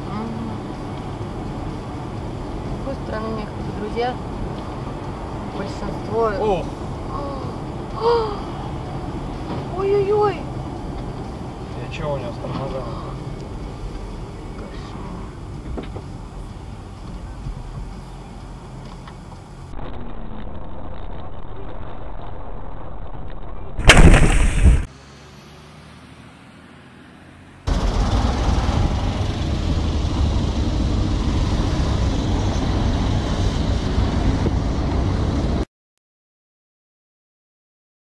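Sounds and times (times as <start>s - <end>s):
road and engine noise: 0.0s - 35.7s
vehicle collision crash: 23.8s - 24.9s.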